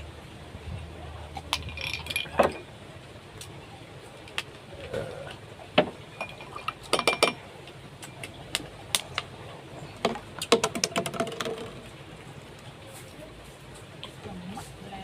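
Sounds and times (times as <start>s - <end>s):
dishes and utensils clinking: 1.4s - 2.7s, 6.1s - 7.4s.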